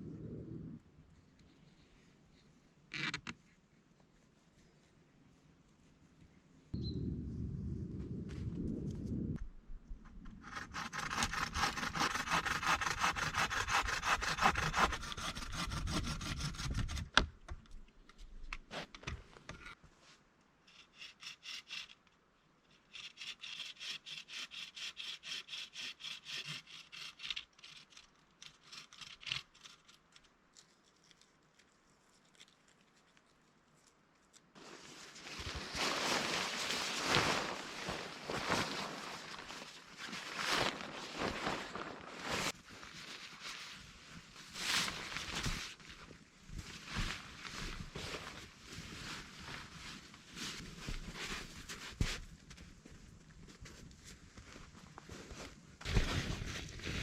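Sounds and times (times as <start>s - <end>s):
hand saw cutting wood: 10.4s - 17.1s, 22.9s - 29.8s.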